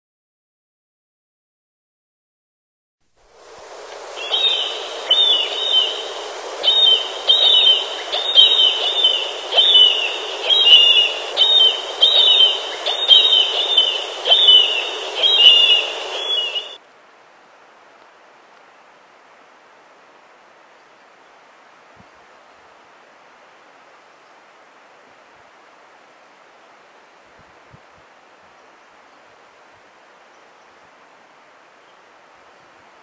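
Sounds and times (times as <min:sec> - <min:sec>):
steady background hiss: 0:03.1 - 0:33.0
bird chirping: 0:04.2 - 0:16.8.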